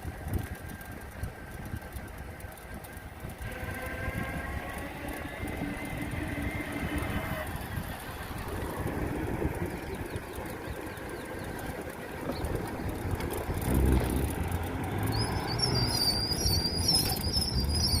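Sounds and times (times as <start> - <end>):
vehicle engine rumble: 0.0 - 18.0
high wavering whistle-like tone: 15.1 - 18.0.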